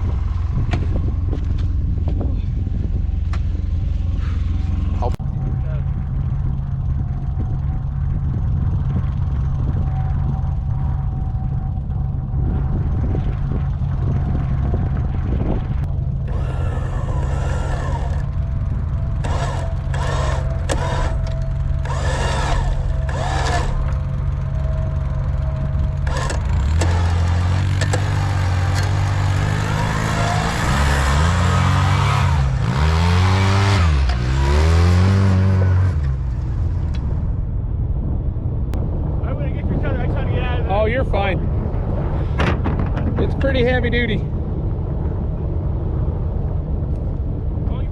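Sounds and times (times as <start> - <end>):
vehicle engine idling: 0.0 - 34.6
engines revving under load: 0.0 - 37.6
engine revving: 4.2 - 37.3.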